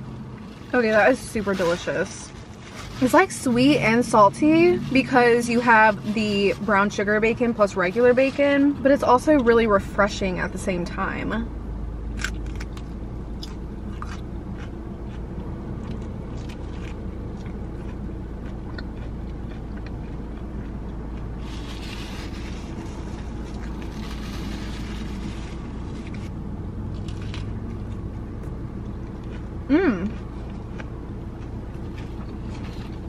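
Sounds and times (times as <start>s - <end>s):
low hum inside a car: 0.0s - 33.0s
rustling: 0.4s - 3.5s, 21.4s - 28.0s
chewing and crunching sandwich: 12.1s - 33.0s.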